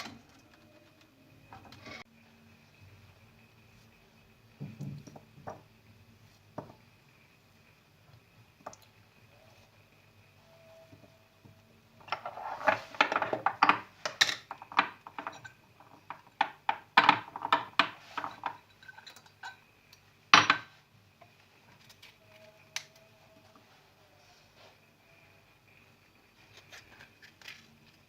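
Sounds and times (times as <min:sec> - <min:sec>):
dishes and cutlery clinking: 0:17.0 - 0:19.6.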